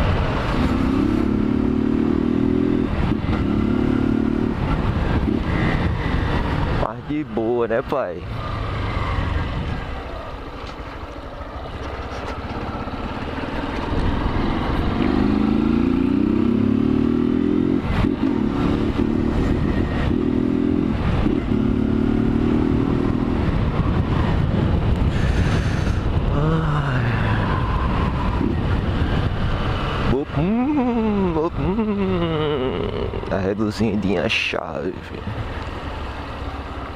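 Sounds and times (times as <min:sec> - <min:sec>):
motorcycle engine accelerating: 0:00.0 - 0:06.9, 0:08.2 - 0:34.2
wind rushing over microphone: 0:00.0 - 0:07.5, 0:08.5 - 0:10.1, 0:13.8 - 0:34.2.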